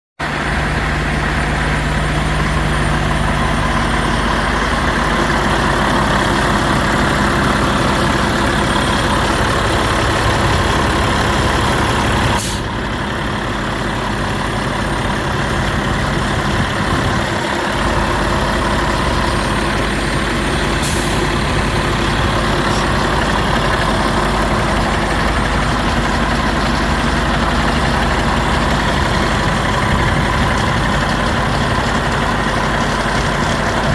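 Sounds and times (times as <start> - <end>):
garbage truck engine idling: 0.2 - 33.9
brief hiss: 12.4 - 12.7.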